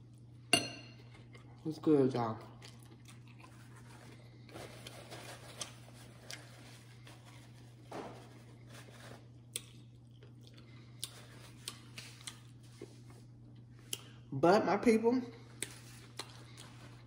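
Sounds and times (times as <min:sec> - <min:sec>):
steady low hum: 0:00.0 - 0:17.0
faint chewing and mouth clicks: 0:02.4 - 0:04.4, 0:09.2 - 0:14.2, 0:15.5 - 0:17.0.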